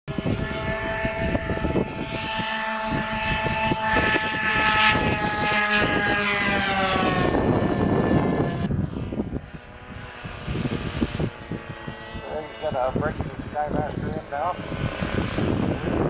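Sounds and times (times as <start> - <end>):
model airplane propeller engine: 0.1 - 16.0
wind buffeting microphone: 0.1 - 16.0.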